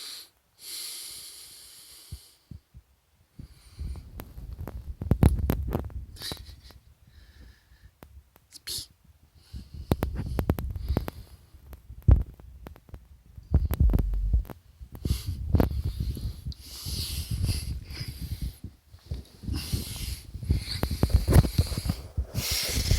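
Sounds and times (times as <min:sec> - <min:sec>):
soft breathy hisses: 0:00.0 - 0:02.7, 0:03.3 - 0:04.2, 0:15.0 - 0:22.9
clicks and rubbing noises: 0:04.1 - 0:06.8, 0:09.9 - 0:15.8
kitten purring: 0:13.6 - 0:14.5.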